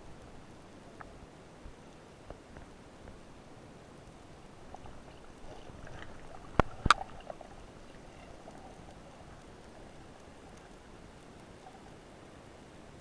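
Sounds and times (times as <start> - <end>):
faint hiss of water: 0.0 - 13.0
sharp clicks underwater: 4.5 - 12.1.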